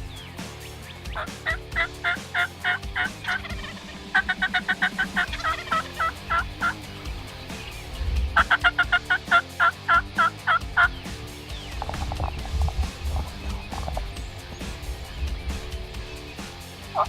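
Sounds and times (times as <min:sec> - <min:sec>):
faint background music: 0:00.0 - 0:17.0
turkey calling: 0:00.0 - 0:17.0.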